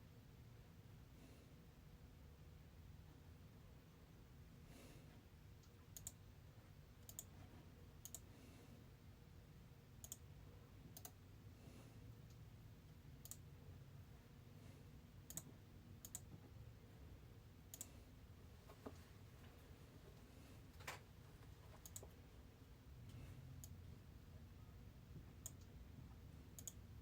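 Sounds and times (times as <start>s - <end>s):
low steady hum: 0.0s - 27.0s
faint sharp clicks: 21.8s - 22.2s, 26.6s - 26.8s.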